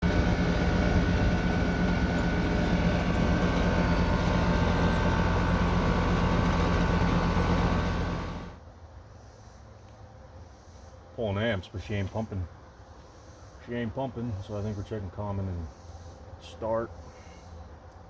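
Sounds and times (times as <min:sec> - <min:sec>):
air conditioner electrical hum: 0:00.0 - 0:08.6
air conditioner fan noise: 0:00.0 - 0:08.6.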